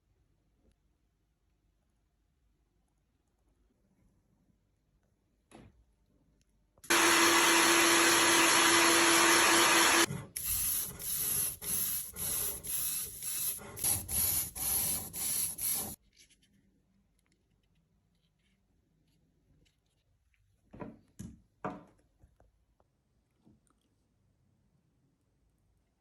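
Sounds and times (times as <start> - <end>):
sanding plastic part: 6.9 - 16.0.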